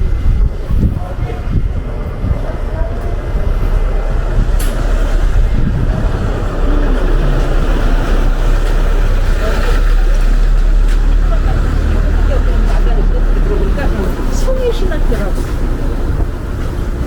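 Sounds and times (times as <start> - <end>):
city street traffic: 0.0 - 17.0
wind buffeting microphone: 0.0 - 17.0.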